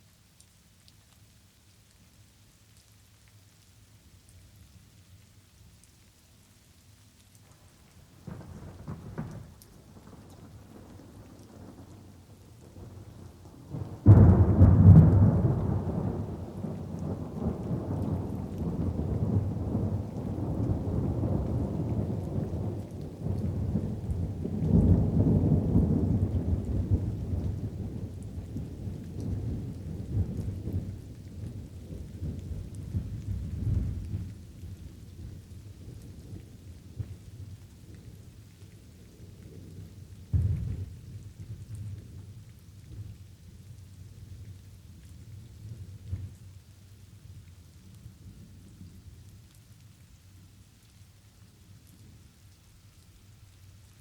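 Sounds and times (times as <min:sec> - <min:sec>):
light rain: 0:00.0 - 0:54.0
rolling thunder: 0:13.7 - 0:34.4, 0:40.3 - 0:42.3.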